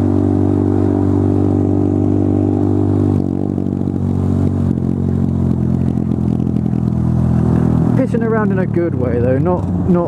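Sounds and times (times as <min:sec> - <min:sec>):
motorcycle engine through loud exhaust: 0:00.0 - 0:10.0.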